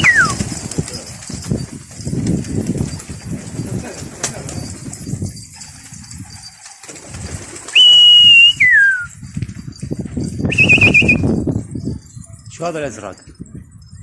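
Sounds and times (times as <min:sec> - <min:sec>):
loud whistles: 0:00.0 - 0:00.4, 0:07.7 - 0:09.2, 0:10.4 - 0:11.4
pigeon wings rustling: 0:00.0 - 0:08.6.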